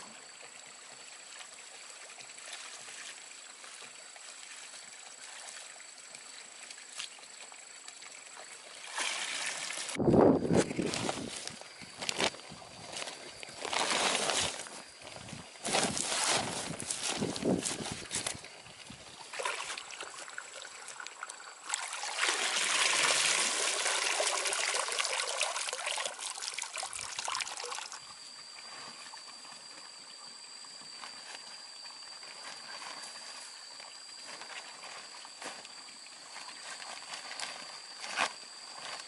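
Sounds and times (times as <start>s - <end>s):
water pouring: 7.6s - 10.0s, 18.8s - 28.1s
water splashing: 8.5s - 10.0s, 19.2s - 28.0s.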